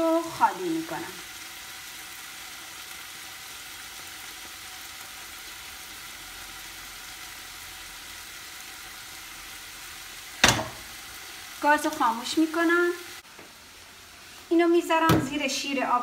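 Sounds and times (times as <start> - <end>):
meat and onions sizzling: 0.0 - 16.0.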